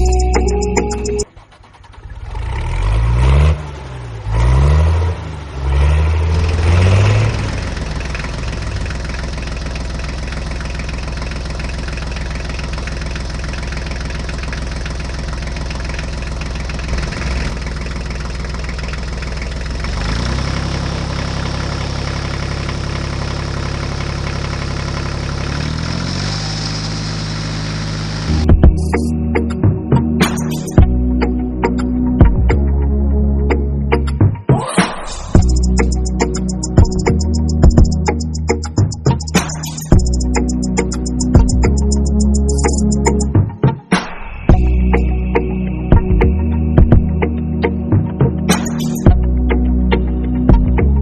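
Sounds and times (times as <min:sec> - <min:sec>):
small model tractor motor revving: 0:25.4 - 0:28.2.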